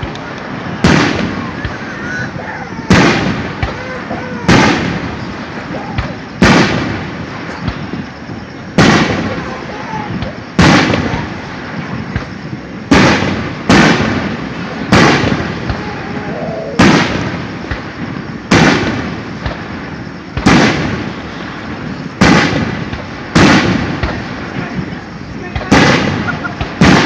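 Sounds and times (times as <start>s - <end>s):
firework shells booming: 0.0s - 27.0s.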